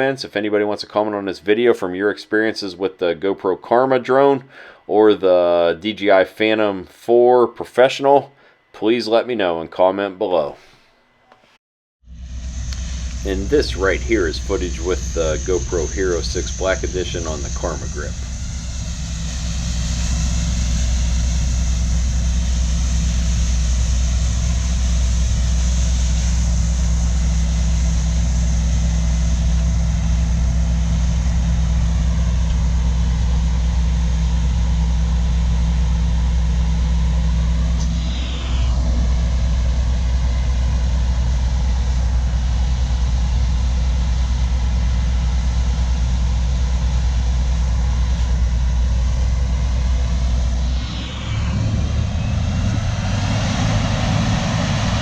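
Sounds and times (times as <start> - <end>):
diesel machinery engine hum: 12.1 - 55.0
short falling whine: 12.1 - 55.0.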